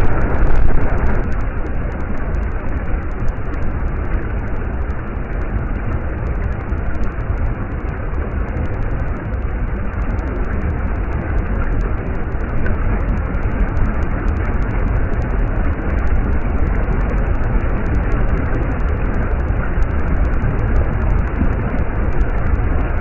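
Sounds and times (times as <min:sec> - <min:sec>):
stream water rushing: 0:00.0 - 0:01.5.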